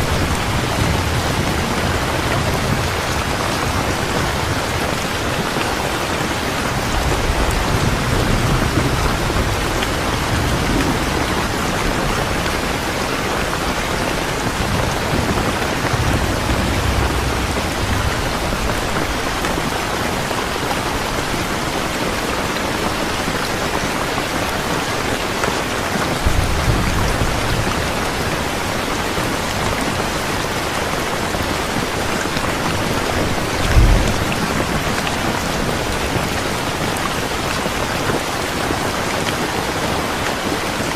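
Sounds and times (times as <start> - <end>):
low rumbles: 0.0 - 22.3, 26.1 - 36.8
heavy rain pouring: 0.0 - 40.9
short low thump: 15.9 - 19.6.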